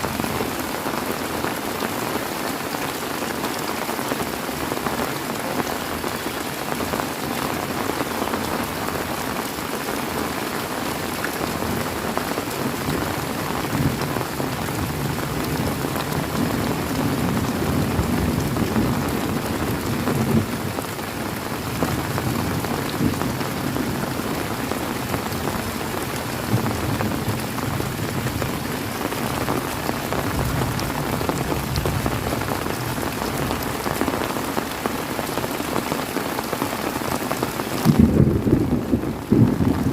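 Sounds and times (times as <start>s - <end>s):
heavy rain: 0.0s - 39.9s
thunder rumbling: 37.8s - 39.9s.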